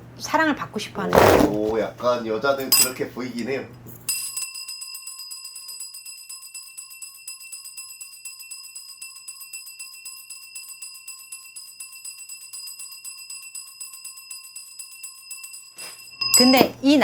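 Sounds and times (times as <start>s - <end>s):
bell cluster jingling: 6.9s - 16.8s.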